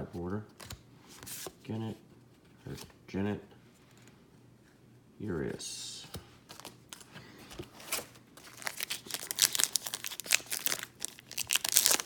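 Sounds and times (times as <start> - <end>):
wrapper crinkling and tearing: 7.8 - 12.0.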